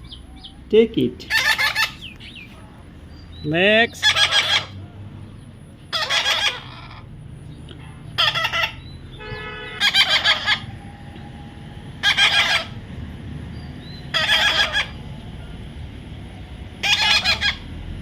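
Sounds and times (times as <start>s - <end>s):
parrot screeching: 1.2s - 2.1s, 4.0s - 4.8s, 5.9s - 7.0s, 8.2s - 8.9s, 9.8s - 10.8s, 12.0s - 12.8s, 14.1s - 15.0s, 16.8s - 17.7s.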